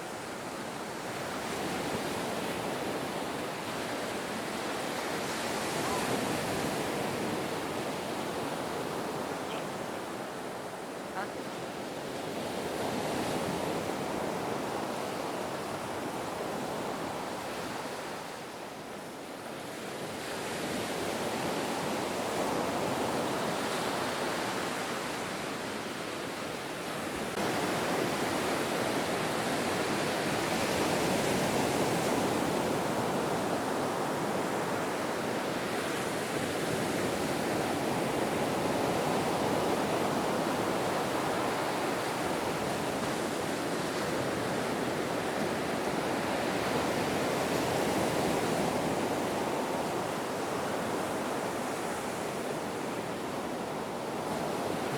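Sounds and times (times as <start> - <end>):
ocean waves breaking: 0.0 - 18.3.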